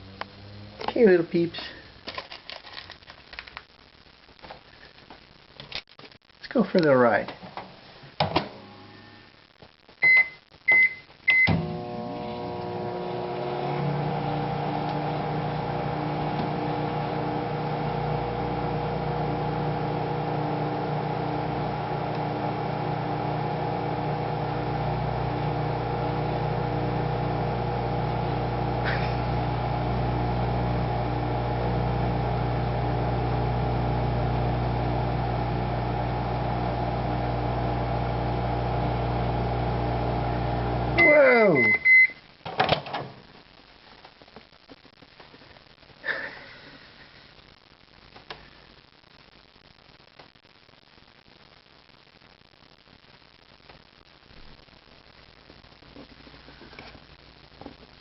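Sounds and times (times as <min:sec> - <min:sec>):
microwave keypad beeps: 0:10.0 - 0:11.6, 0:41.0 - 0:42.2
microwave oven humming: 0:11.4 - 0:41.7.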